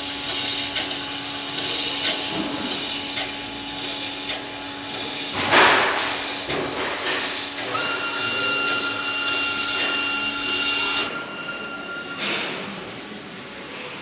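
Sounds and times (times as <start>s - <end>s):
steam hissing: 7.2s - 13.9s
toy steam engine humming and ticking: 7.3s - 11.1s.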